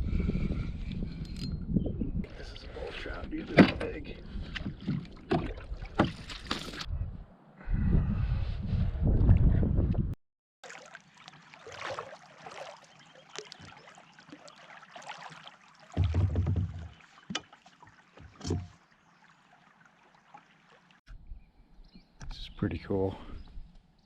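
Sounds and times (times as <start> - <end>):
water splashing around kayak: 3.1 - 6.9, 10.6 - 21.1
low bumps: 16.0 - 17.1.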